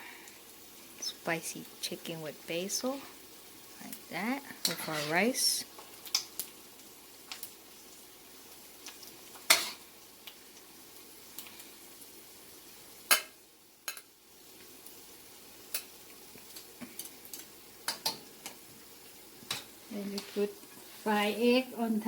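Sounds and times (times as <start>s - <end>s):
faint steady hiss: 0.0s - 22.0s
utensil clinking and scraping pan: 4.6s - 5.3s.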